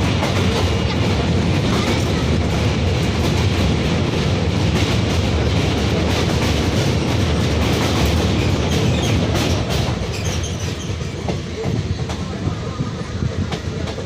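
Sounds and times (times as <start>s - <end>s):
train running gear rumble: 0.0s - 14.0s.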